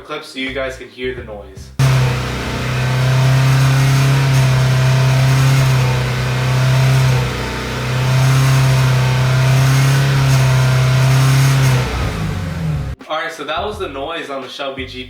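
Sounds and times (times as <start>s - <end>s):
car engine with buzzing drone: 1.8s - 13.0s.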